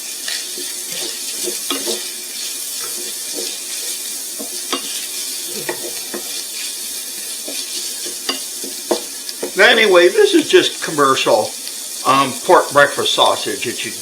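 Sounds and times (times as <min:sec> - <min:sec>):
sausage sizzling in a pan: 0:00.0 - 0:14.0
utensil clicking against pan: 0:00.2 - 0:03.8, 0:07.2 - 0:09.6.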